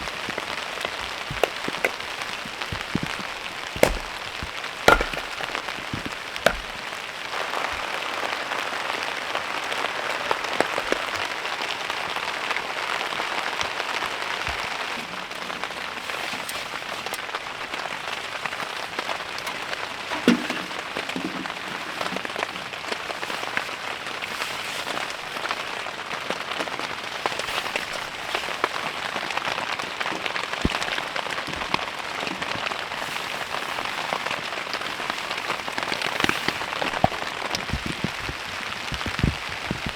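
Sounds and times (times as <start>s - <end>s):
rain pattering: 0.0s - 39.9s
dull thump: 1.3s - 6.8s
knock: 4.9s - 5.4s.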